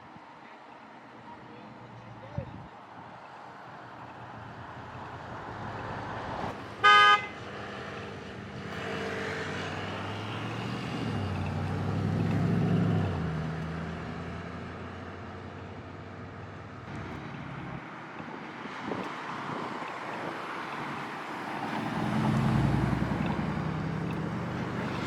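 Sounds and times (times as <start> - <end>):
car horn toot: 6.8 - 7.4
car driving past: 20.8 - 25.0.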